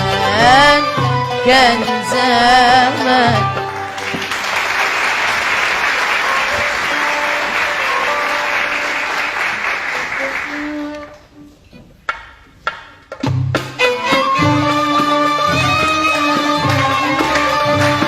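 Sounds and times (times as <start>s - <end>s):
audience applauding: 3.6s - 11.2s, 15.6s - 18.0s.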